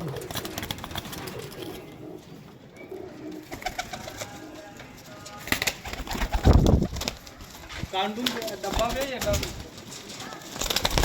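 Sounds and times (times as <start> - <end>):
pigeons cooing: 0.0 - 4.9.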